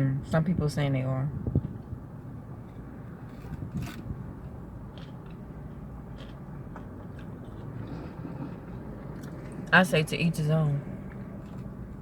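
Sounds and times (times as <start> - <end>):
low hum inside car: 0.0 - 12.0
chewing and mouth clicks: 3.4 - 9.7, 11.0 - 12.0.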